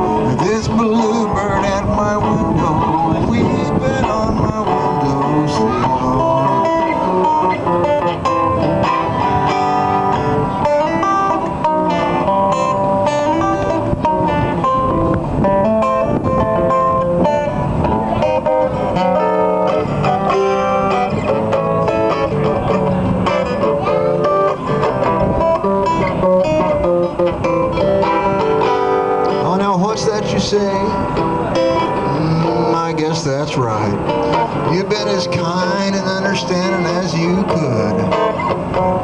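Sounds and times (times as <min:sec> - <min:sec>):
acoustic slide guitar blues: 0:00.0 - 0:39.0.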